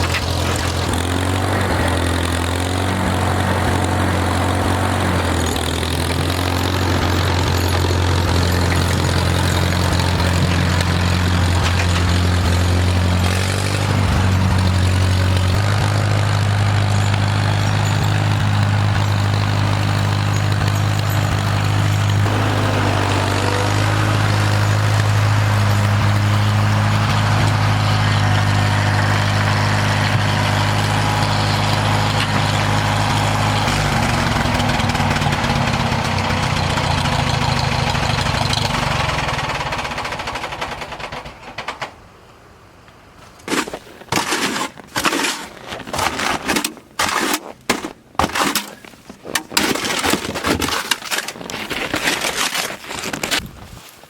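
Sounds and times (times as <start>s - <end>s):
tractor engine running: 0.0s - 42.1s.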